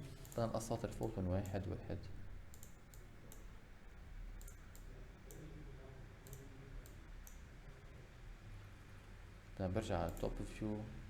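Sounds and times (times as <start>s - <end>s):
computer mouse clicking: 2.5s - 3.5s, 4.4s - 5.4s, 6.2s - 7.4s.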